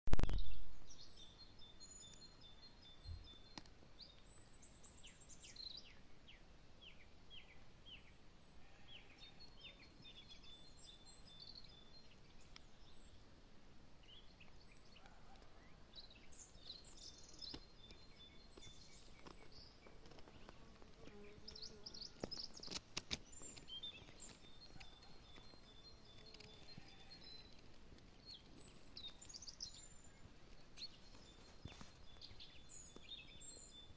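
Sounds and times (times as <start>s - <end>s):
faint birdsong chirps and trills: 0.1s - 33.9s
sharp clicks: 22.2s - 29.3s.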